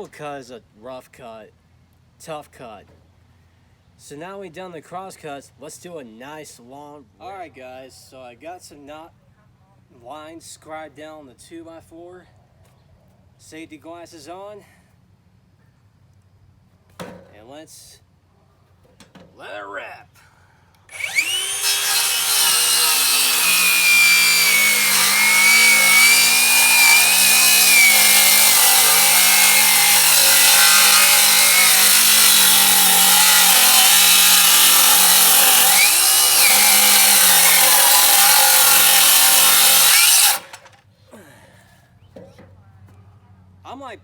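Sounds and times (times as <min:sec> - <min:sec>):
circular saw cutting wood: 0:20.9 - 0:40.8.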